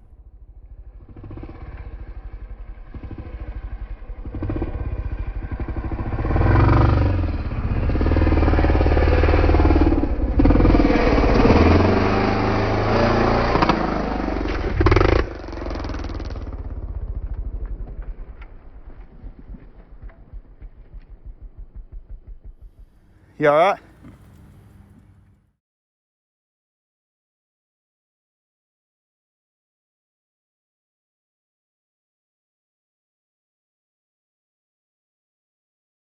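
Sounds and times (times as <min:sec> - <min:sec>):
dirt bike engine revving: 0:00.6 - 0:24.8.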